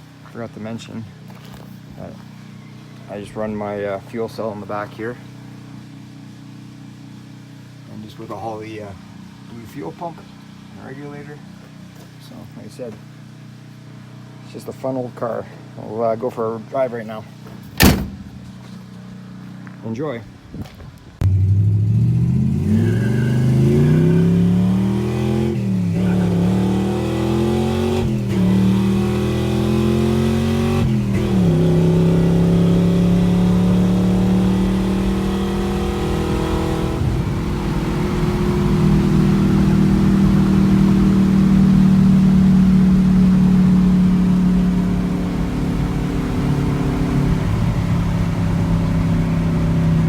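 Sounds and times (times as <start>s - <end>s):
engine accelerating through gears: 21.2s - 50.0s.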